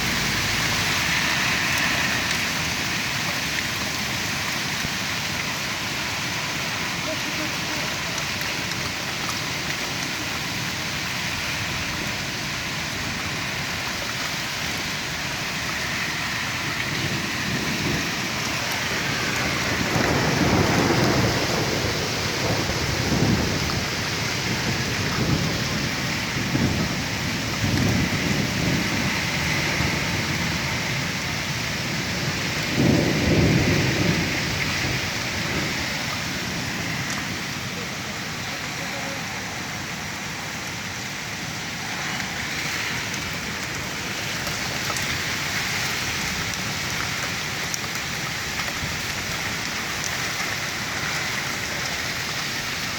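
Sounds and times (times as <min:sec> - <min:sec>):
hail and rain hissing: 0:00.0 - 0:52.9
low rumbling wind surges: 0:16.4 - 0:37.6.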